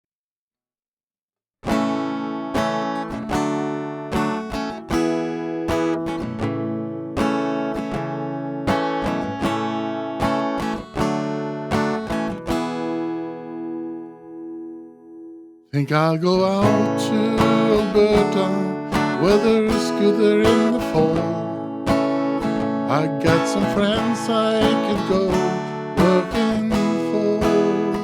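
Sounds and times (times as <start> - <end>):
acoustic guitar strumming: 1.6 - 28.0.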